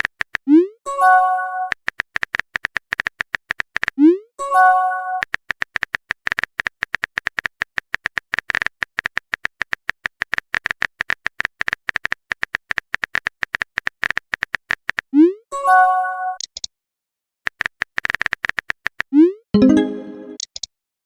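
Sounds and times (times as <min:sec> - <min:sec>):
keyboard typing clicks: 0:16.4 - 0:16.7, 0:17.5 - 0:20.7.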